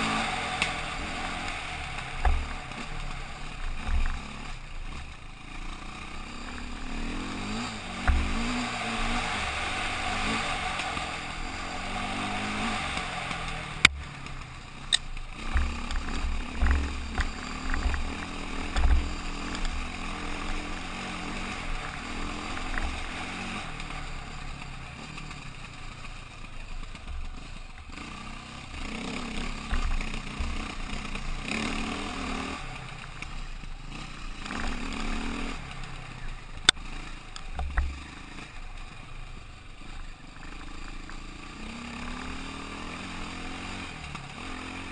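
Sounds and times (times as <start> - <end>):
motorcycle engine running: 0.0 - 44.9
sharp click: 14.9 - 15.2.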